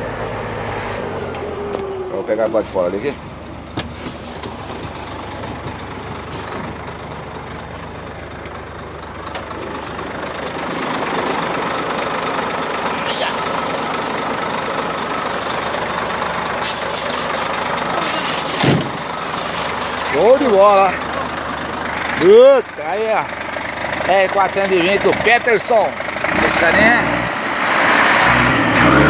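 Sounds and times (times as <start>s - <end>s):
diesel truck engine running: 0.0s - 29.0s
short hisses: 13.1s - 20.3s.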